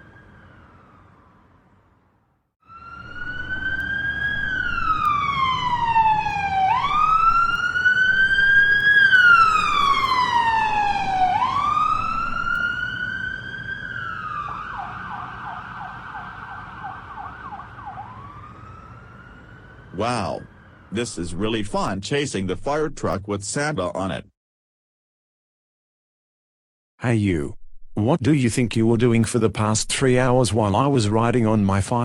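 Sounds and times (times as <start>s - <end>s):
fire truck siren wailing: 0.0s - 21.4s
engine rumble: 2.8s - 21.6s.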